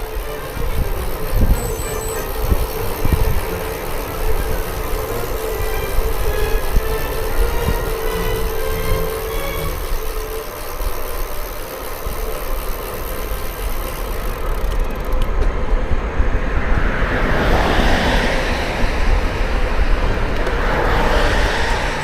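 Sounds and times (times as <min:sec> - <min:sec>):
wind buffeting microphone: 0:00.0 - 0:10.4
broad rushing noise: 0:00.0 - 0:22.0.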